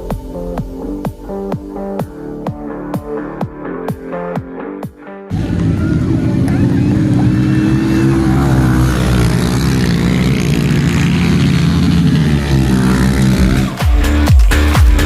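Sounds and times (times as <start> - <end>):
dirt bike engines droning: 5.3 - 14.7.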